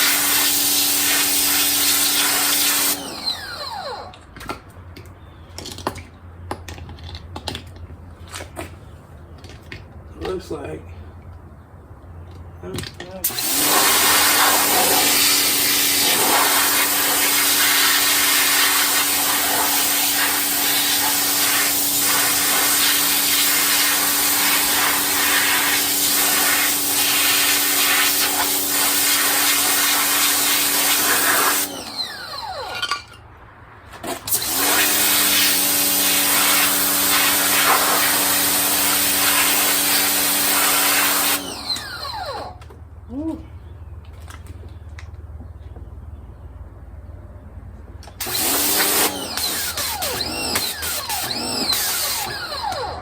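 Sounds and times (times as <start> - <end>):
pressure washer motor hum: 0.0 - 4.2, 13.2 - 33.1, 34.0 - 42.7, 48.2 - 53.0.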